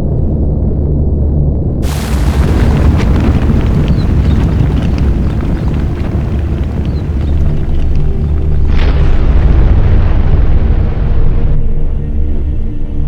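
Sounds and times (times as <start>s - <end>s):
hiss: 1.8s - 8.4s
faint crackling: 1.8s - 8.9s
volcano rumbling: 1.8s - 11.5s.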